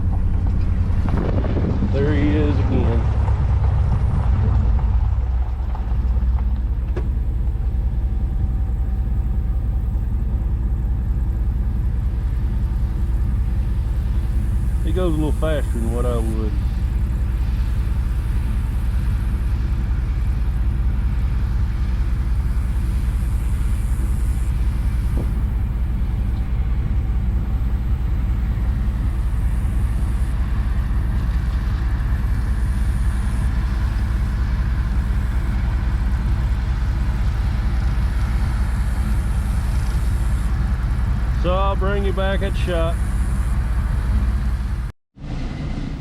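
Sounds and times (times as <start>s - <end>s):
vehicle engine running: 0.0s - 46.0s.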